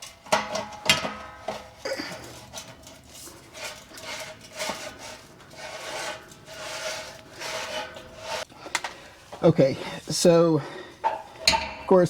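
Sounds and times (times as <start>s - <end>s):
metal parts scraping: 0.0s - 8.5s.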